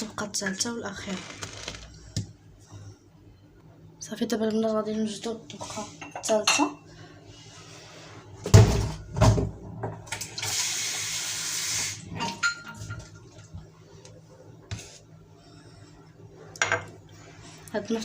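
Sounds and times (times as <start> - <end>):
water running from tap: 10.2 - 12.2.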